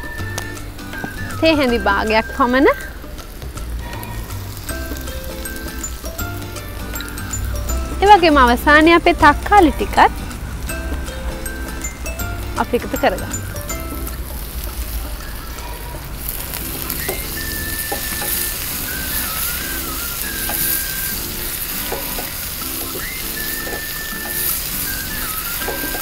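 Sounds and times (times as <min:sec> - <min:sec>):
soft instrumental music: 0:00.0 - 0:26.0
vegetables sizzling in frying pan: 0:00.0 - 0:26.0
spatula stirring: 0:15.6 - 0:26.0.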